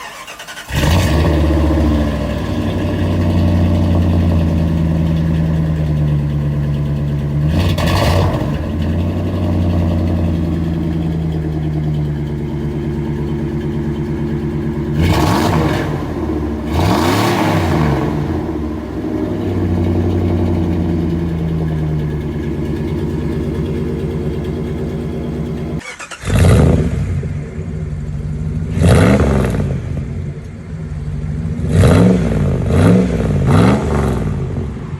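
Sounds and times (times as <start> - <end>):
engine starting: 0.0 - 2.4, 25.5 - 27.2
engine revving: 0.0 - 30.4, 31.0 - 34.9
engine idling with lumpy exhaust: 0.6 - 34.9.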